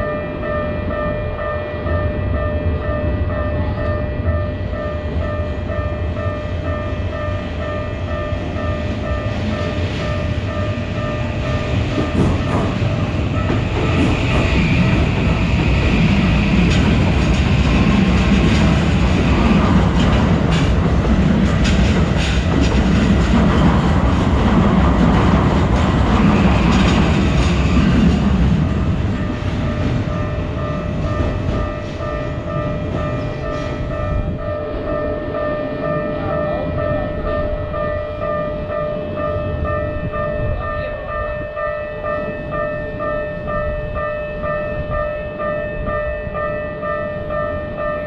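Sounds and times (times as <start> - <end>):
railroad crossing alarm ringing: 0.0 - 48.0
train rumbling past: 0.0 - 48.0.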